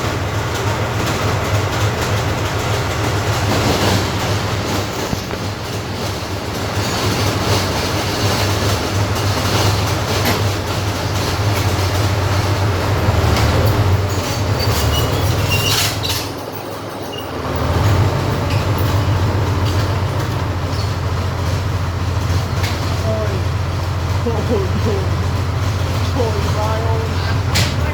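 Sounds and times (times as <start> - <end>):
vehicle engine droning: 0.0 - 27.9.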